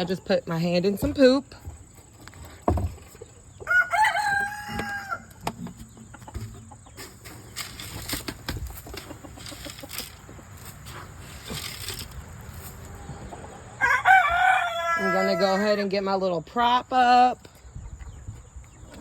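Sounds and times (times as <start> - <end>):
birds scuffling in bedding: 0.5 - 13.4.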